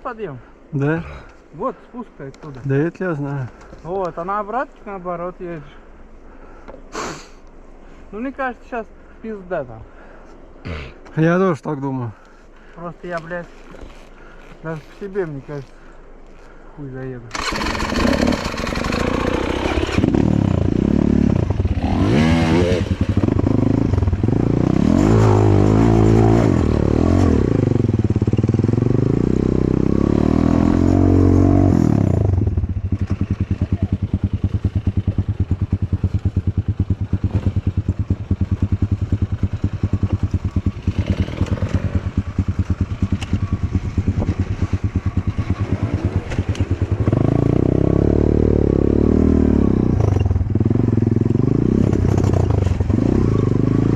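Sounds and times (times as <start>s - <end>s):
motorcycle engine revving: 17.3s - 53.9s.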